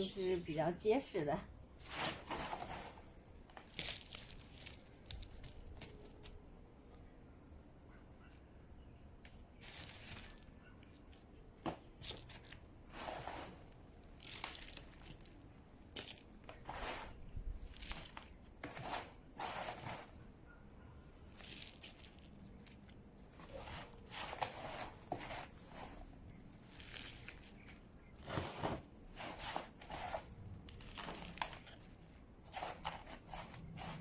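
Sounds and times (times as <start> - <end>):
gritty soil poured into pot: 1.8 - 5.5, 12.9 - 20.2, 23.4 - 31.8, 32.4 - 34.0.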